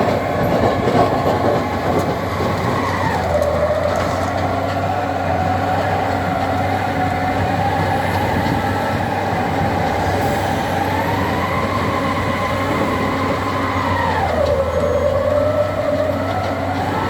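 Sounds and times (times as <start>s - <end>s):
engine whine: 0.0s - 17.0s
tractor loader engine running: 0.0s - 17.0s.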